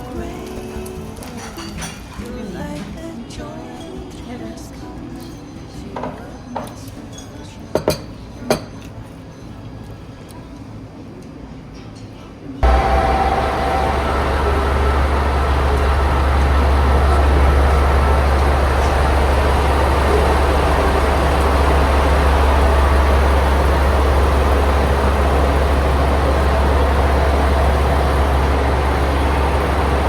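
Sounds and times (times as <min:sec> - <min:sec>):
train rumbling inside carriage: 0:12.6 - 0:30.0.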